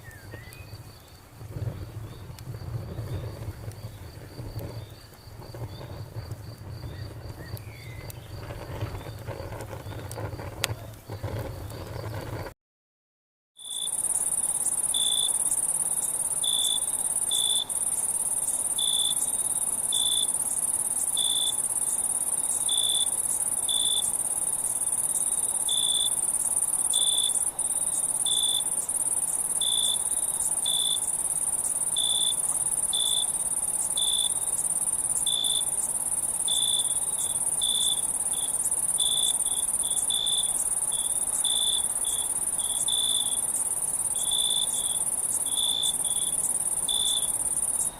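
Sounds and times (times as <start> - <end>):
lower-pitched insect chirp: 0.0 - 12.5, 13.6 - 47.9
high-pitched insect trilling drone: 13.7 - 47.9.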